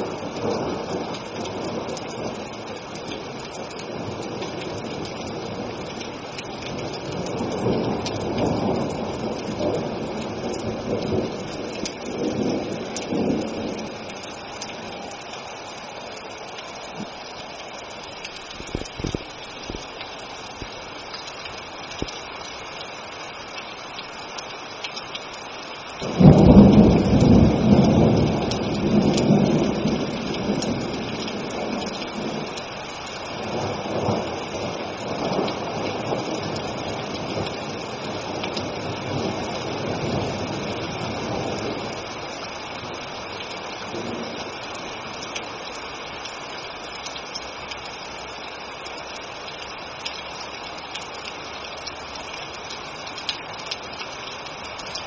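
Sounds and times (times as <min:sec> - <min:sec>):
steady rain falling: 0:00.0 - 0:55.0
rolling thunder: 0:06.6 - 0:14.1, 0:26.0 - 0:32.7.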